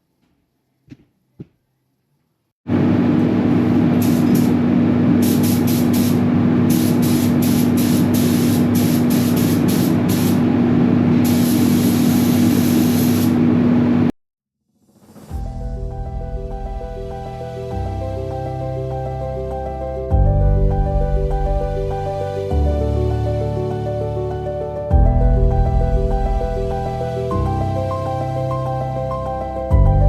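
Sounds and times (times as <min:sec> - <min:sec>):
spray gun trigger hiss bursts: 0:03.9 - 0:10.5, 0:11.2 - 0:13.4
spray gun air rushing: 0:03.9 - 0:10.6, 0:11.2 - 0:13.5.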